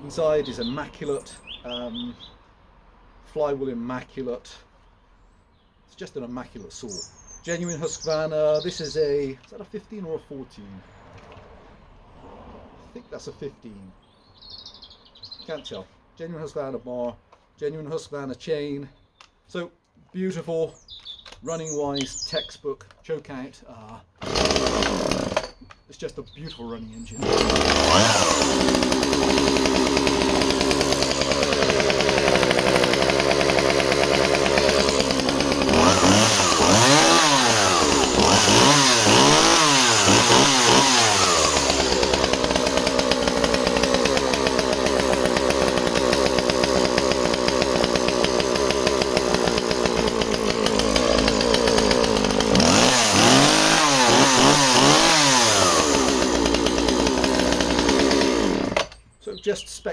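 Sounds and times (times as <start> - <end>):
chainsaw engine revving: 24.2 - 25.6, 27.1 - 59.0.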